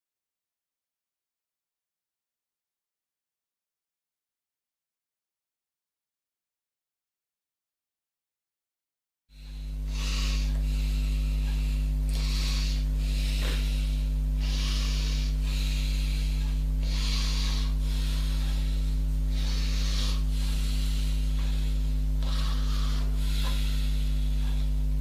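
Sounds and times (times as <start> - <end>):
low electrical hum: 9.3 - 25.0
hand filing or sanding strokes: 12.2 - 24.6.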